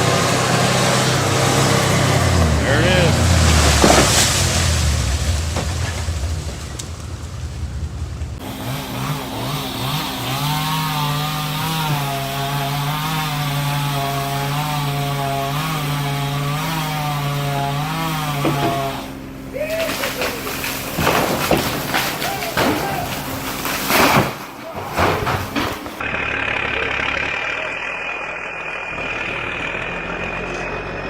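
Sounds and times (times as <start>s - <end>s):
chainsaw engine revving: 0.0s - 6.8s, 8.4s - 31.0s
sharp knocks: 20.8s - 26.0s.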